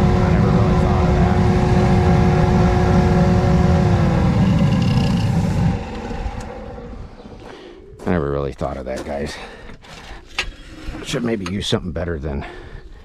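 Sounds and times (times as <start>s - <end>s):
steady tone: 0.0s - 8.3s
furnace burner rumble: 0.0s - 8.5s.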